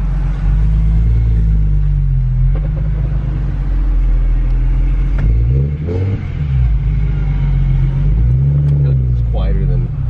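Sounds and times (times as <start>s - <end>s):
car engine droning: 0.0s - 10.0s.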